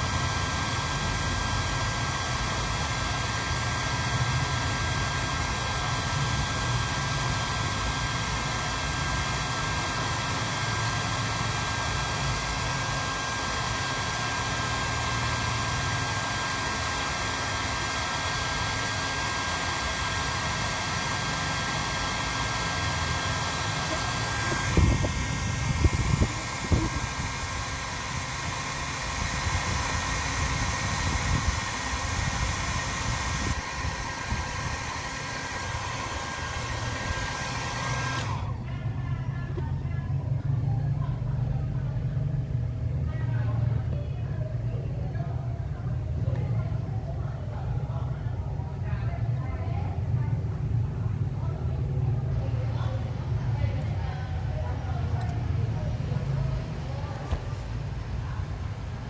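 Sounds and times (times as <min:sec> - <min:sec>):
whirring machine noise: 0:00.0 - 0:43.7.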